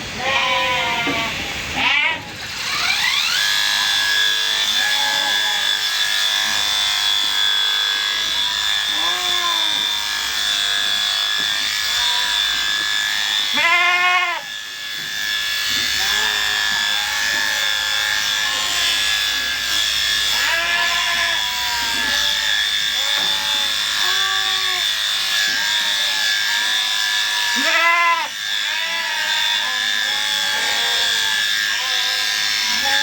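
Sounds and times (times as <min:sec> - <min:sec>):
electric shearing clippers whine: 0:00.0 - 0:33.0
sheep bleating: 0:00.2 - 0:02.3, 0:04.6 - 0:05.8, 0:08.8 - 0:10.4, 0:13.4 - 0:14.6, 0:15.9 - 0:19.0, 0:20.2 - 0:33.0.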